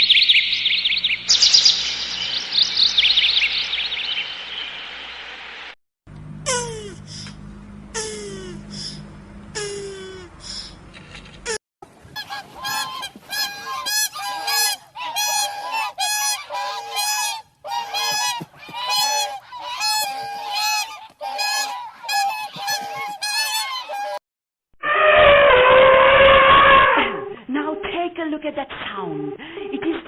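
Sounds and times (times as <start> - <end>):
farm bird honking: 12.2 - 24.2.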